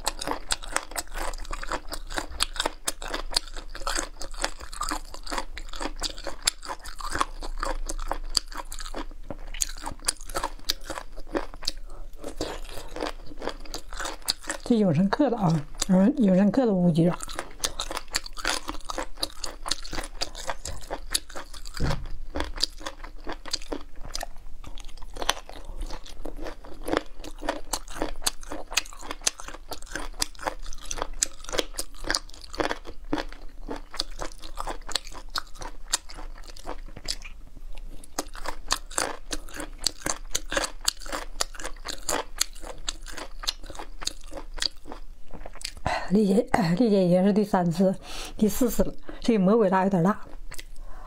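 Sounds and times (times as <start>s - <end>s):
chewing with crunching clicks: 0.0s - 14.8s, 17.1s - 45.9s, 50.2s - 51.0s.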